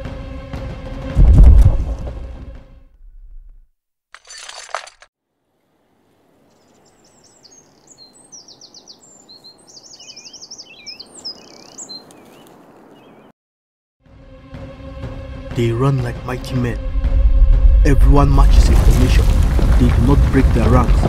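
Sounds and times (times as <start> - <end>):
small birds chirping: 5.6 - 13.3.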